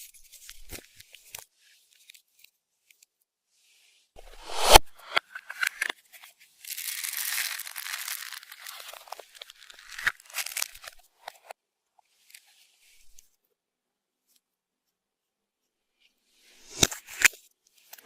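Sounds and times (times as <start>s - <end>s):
crinkling rustling handling noise: 6.3s - 11.5s.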